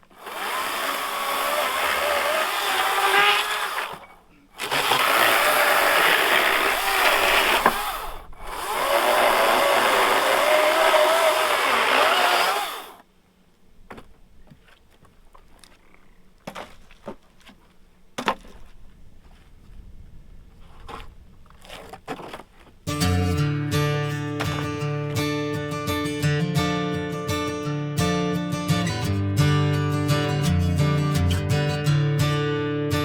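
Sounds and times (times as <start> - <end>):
electric chainsaw cutting wood: 0.0 - 13.0, 24.3 - 24.8.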